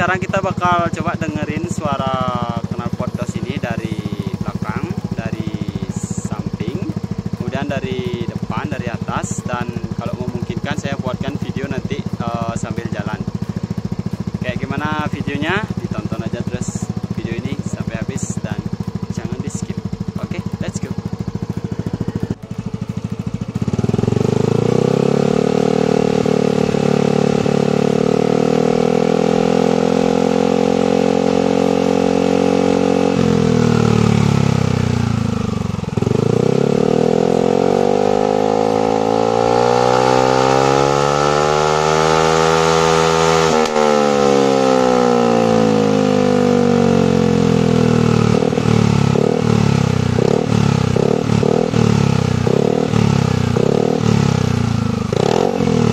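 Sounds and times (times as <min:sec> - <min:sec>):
scooter engine revving: 0:00.0 - 0:55.9.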